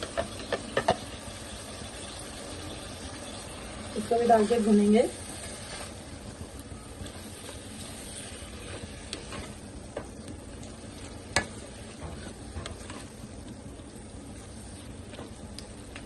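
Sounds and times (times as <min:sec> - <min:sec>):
spoon knocking on pan: 0:00.0 - 0:01.0
food sizzling in oil: 0:00.0 - 0:16.0.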